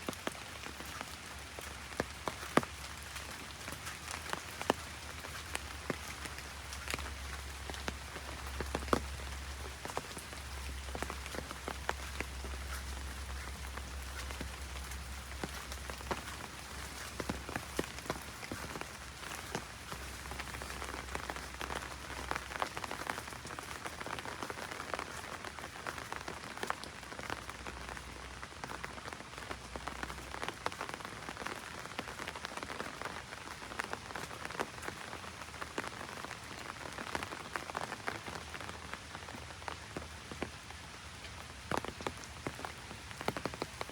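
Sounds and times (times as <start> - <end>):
heavy rain on an umbrella: 0.0 - 43.9.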